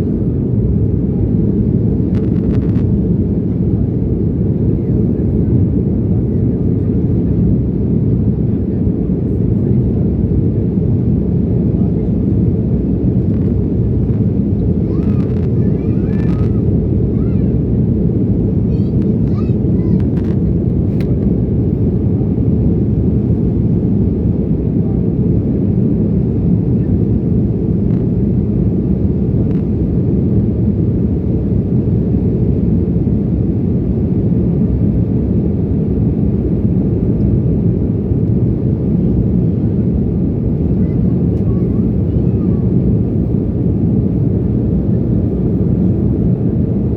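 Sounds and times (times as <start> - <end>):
airliner cabin noise: 0.0 - 46.9
faint voices: 4.5 - 17.6, 40.6 - 42.9.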